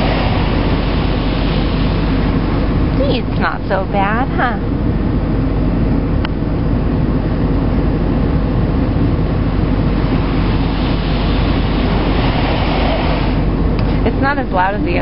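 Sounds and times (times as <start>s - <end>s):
hiss of spray: 0.0s - 2.2s, 10.1s - 13.5s
car wash machinery rumble: 0.0s - 15.0s.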